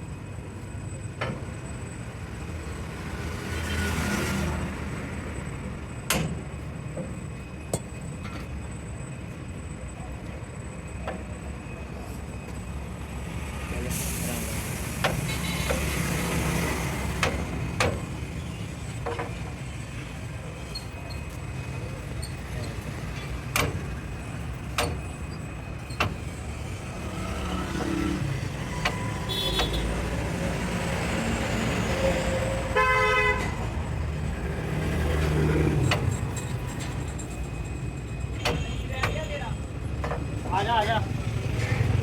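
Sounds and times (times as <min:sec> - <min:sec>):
traffic rumble: 0:00.0 - 0:42.0
vehicle horn honk: 0:29.2 - 0:29.9, 0:32.7 - 0:33.6.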